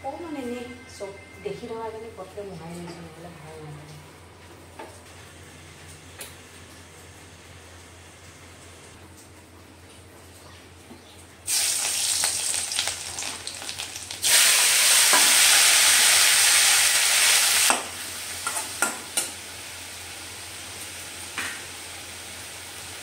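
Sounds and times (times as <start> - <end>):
oil crackling: 11.4 - 17.7
food sizzling in oil: 11.5 - 23.0.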